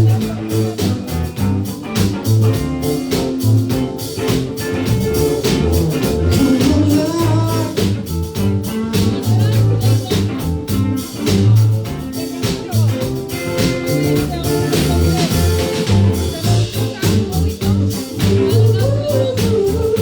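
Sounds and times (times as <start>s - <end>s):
bass line: 0.0s - 20.0s
drums keeping steady beat: 0.0s - 20.0s
guitar: 0.0s - 20.0s
person singing: 0.0s - 20.0s.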